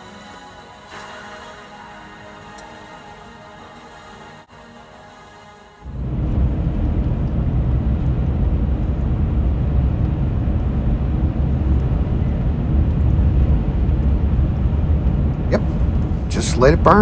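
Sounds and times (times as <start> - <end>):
truck driving rumble: 5.9 - 17.0.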